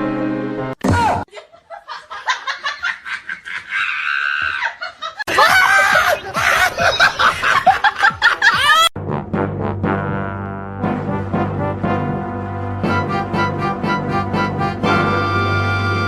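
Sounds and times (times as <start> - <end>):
people laughing: 1.3 - 8.9.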